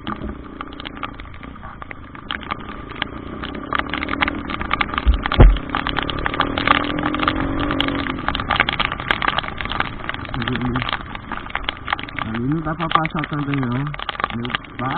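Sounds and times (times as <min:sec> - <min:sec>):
heavy rain crackling: 0:00.0 - 0:14.9
heavy low thump: 0:05.0 - 0:05.6.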